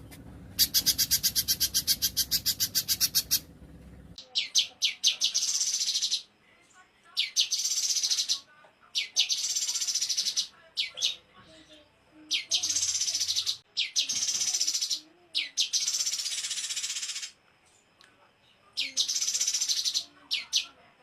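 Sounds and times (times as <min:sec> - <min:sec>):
songbird buzzing trill: 0:00.6 - 0:03.5.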